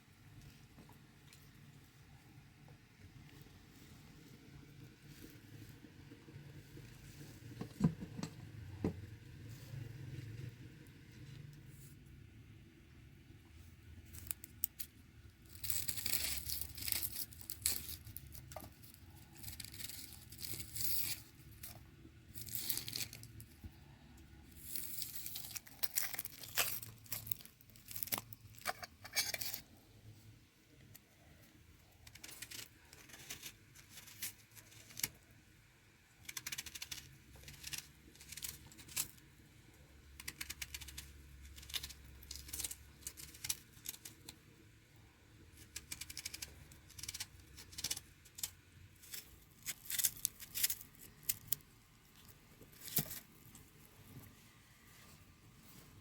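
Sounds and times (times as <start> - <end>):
tearing and crinkling handling noise: 14.1 - 30.0, 40.2 - 44.4, 45.6 - 56.0.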